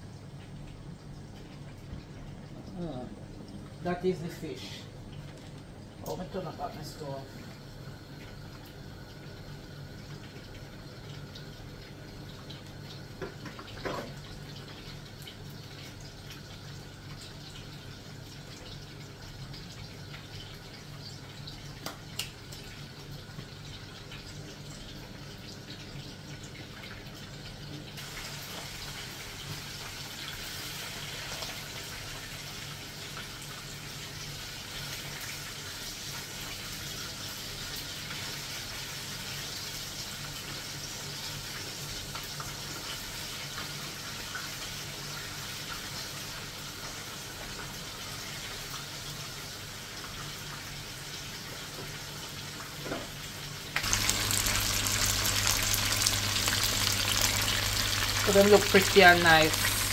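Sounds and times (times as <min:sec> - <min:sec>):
fish sizzling in a frying pan: 0:28.0 - 0:59.9.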